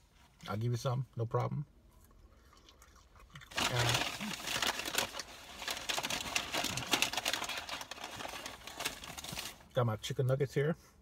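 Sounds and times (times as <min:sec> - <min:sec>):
person chewing french fries: 0:01.8 - 0:05.8.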